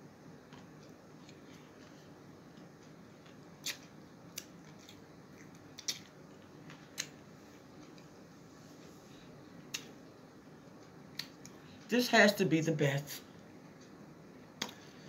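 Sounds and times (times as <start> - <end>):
faint room hiss: 0.0 - 15.0
crisp eating clicks: 2.5 - 7.2.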